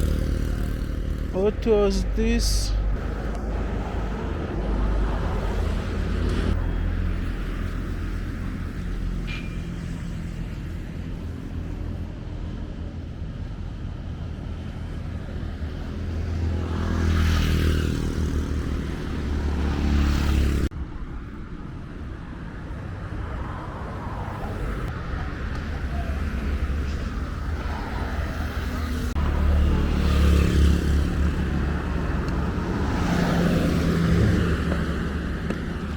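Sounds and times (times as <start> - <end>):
road traffic rumble: 0.0 - 35.9
vehicle passing close by: 16.2 - 20.7, 26.0 - 35.9.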